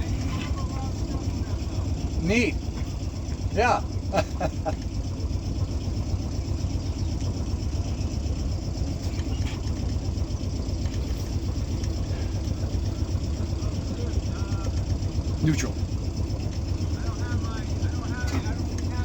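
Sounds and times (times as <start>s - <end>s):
boat engine rumbling: 0.0s - 19.0s.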